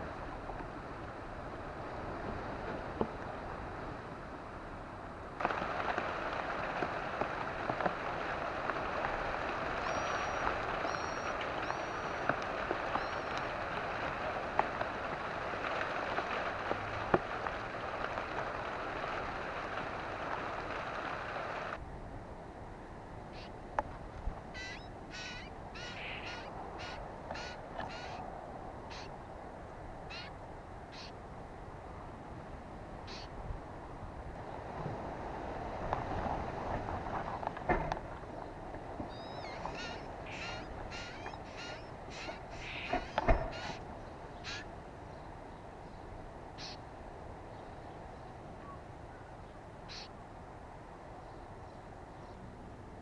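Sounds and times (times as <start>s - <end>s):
steady low background noise: 0.0s - 53.0s
short harsh bird calls: 9.8s - 12.3s, 23.3s - 23.6s, 24.5s - 28.2s, 28.9s - 29.2s, 30.1s - 31.2s, 33.1s - 33.3s, 39.1s - 44.7s, 46.6s - 46.8s, 49.9s - 50.1s
low background rumble: 35.6s - 46.3s.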